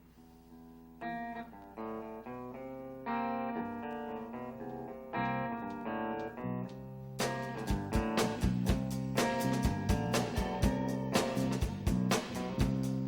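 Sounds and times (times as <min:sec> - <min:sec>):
drum hits: 0:07.2 - 0:13.0.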